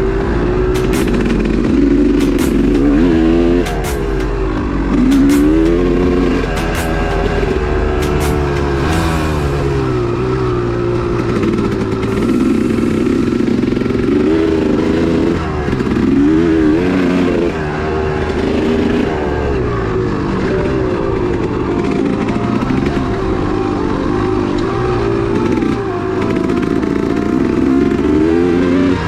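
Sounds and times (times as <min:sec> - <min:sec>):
sharp knocks: 0:00.0 - 0:09.8
motorcycle engine revving: 0:00.0 - 0:29.0.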